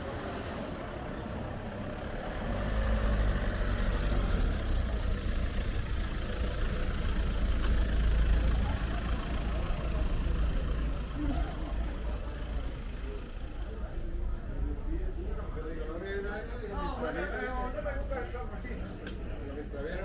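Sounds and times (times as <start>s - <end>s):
vehicle engine low rumble: 0.0s - 15.8s.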